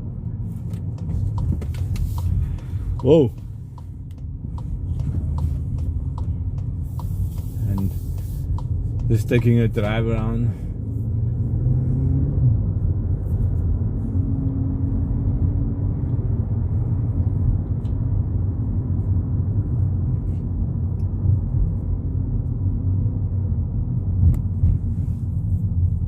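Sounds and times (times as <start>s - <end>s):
car engine and road noise: 0.0s - 26.0s
light ticks: 1.0s - 10.3s.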